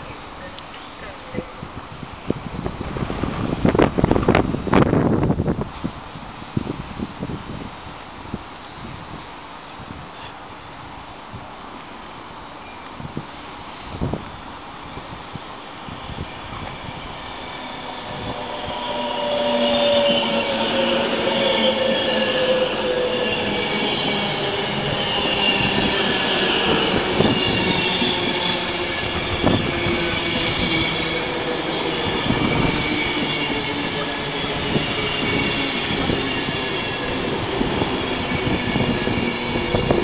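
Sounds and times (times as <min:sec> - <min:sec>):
electric train braking: 0:15.9 - 0:40.0
high squeal: 0:15.9 - 0:40.0.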